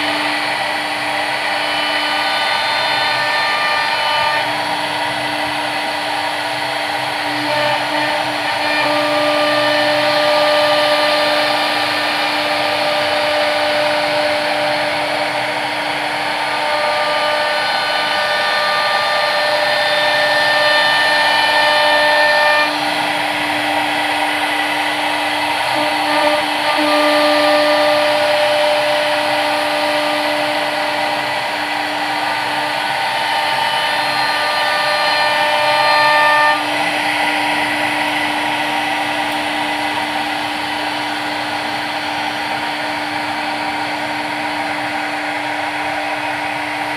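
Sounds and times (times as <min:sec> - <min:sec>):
machine spindle whining and cutting: 0:00.0 - 0:46.9.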